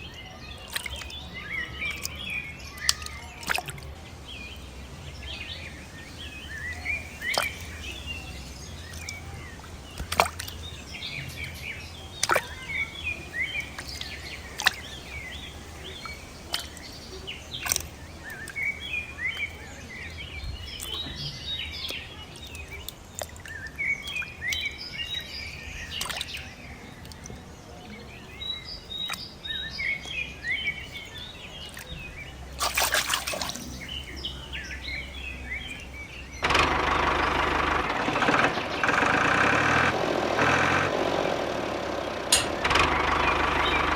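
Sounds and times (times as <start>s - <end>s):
small birds chirping: 0.0s - 43.9s
sharp clicks: 35.7s - 41.2s, 42.1s - 43.9s.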